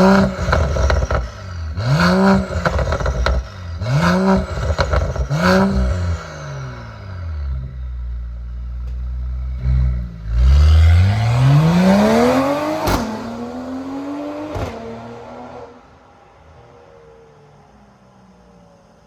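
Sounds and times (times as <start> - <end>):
exhaust pops: 0.0 - 6.0
car exhaust revving: 0.0 - 15.8.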